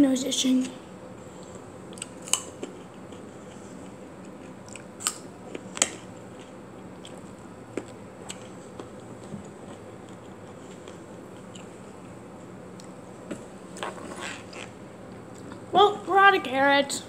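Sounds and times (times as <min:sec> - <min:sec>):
person chewing food: 0:01.3 - 0:13.1.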